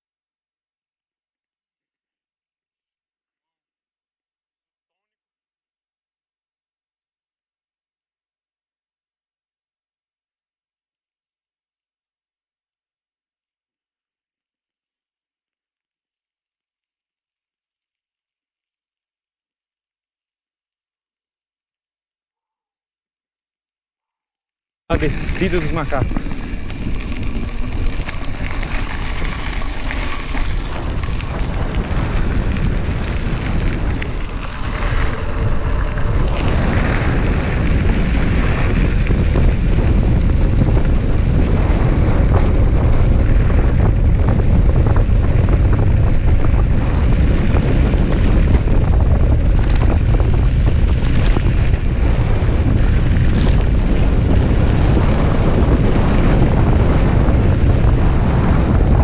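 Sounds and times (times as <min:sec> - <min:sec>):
wind rushing over microphone: 0:24.9 - 0:59.0.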